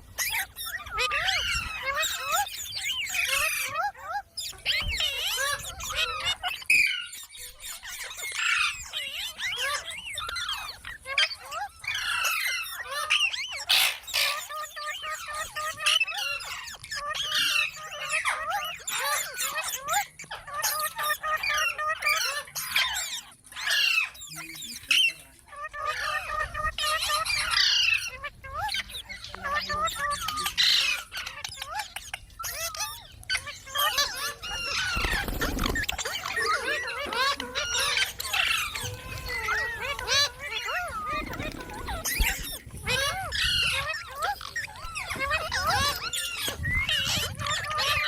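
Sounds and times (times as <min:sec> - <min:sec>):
parrot chattering and squawking: 0:24.8 - 0:48.0.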